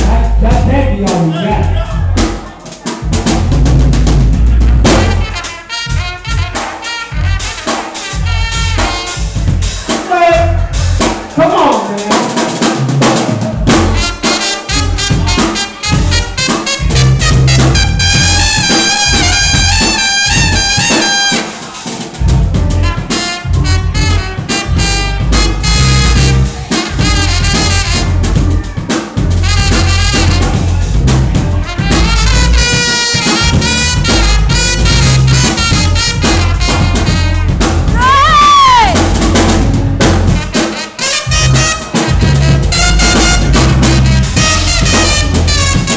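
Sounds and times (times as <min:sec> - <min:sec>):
live band playing: 0:00.0 - 0:45.9
horn note bending downward: 0:12.8 - 0:28.6, 0:29.3 - 0:45.9.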